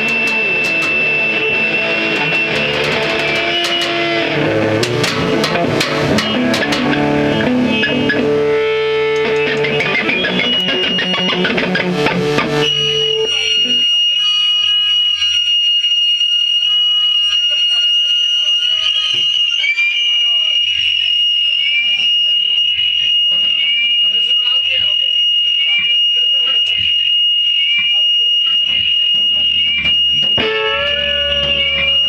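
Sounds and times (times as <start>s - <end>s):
live rock band playing: 0.0s - 13.9s, 30.0s - 32.0s
steady high-pitched whine: 0.0s - 15.9s.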